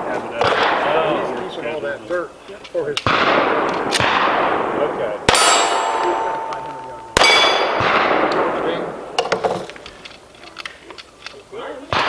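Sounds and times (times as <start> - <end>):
pistol shots: 0.0 - 1.6, 3.0 - 10.1
steel target ringing: 5.3 - 9.3.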